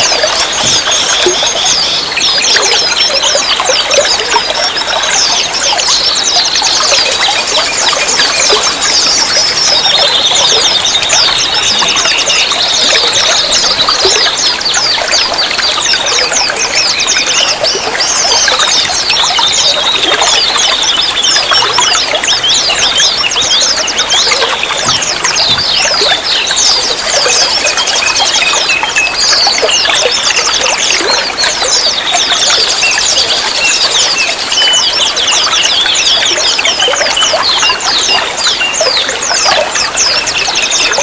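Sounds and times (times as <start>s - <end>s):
water trickling and splashing: 0.0s - 41.0s.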